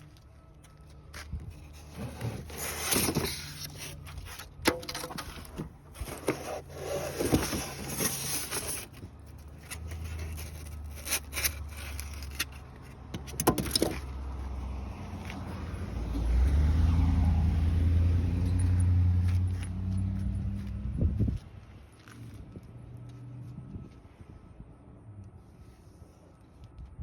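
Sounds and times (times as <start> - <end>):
car parts knocking and scraping: 1.2 - 14.3.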